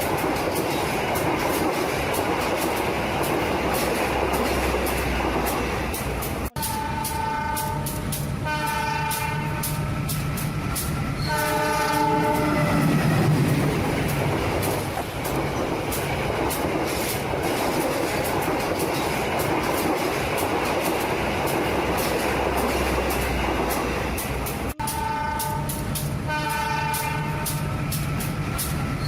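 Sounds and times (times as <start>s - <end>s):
train running rumble: 0.0s - 29.0s
wheels clicking on track: 0.0s - 29.0s
train horn blasts: 6.5s - 10.2s, 11.2s - 13.1s, 24.7s - 27.8s.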